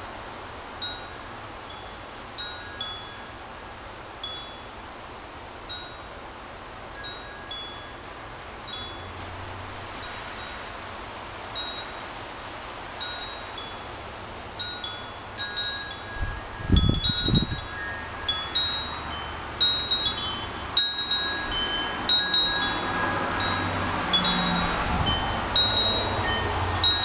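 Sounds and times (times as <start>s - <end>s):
wind chime ringing: 13.0s - 13.9s, 14.6s - 27.0s
wind buffeting microphone: 15.6s - 27.0s.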